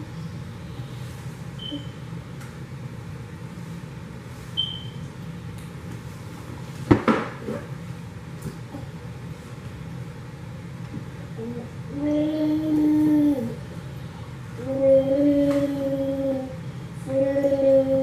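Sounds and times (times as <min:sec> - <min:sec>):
steady low hum: 0:00.0 - 0:18.0
short high beep: 0:04.6 - 0:05.0.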